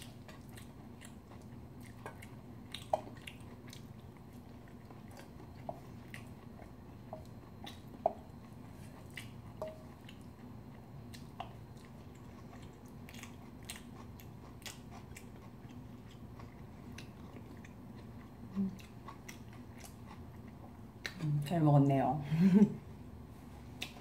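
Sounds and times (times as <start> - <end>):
faint chewing: 0.0 - 21.2, 23.5 - 24.0
steady low hum: 0.0 - 24.0.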